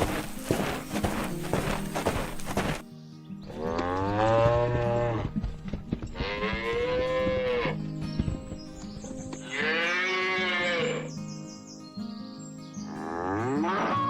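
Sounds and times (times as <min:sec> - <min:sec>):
soft background music: 0:00.0 - 0:14.0
cow mooing: 0:13.0 - 0:14.0.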